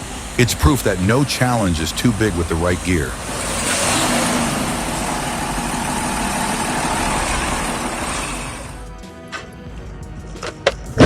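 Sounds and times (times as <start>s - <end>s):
truck diesel engine running: 0.0s - 11.0s
sharp clicks: 10.4s - 11.0s.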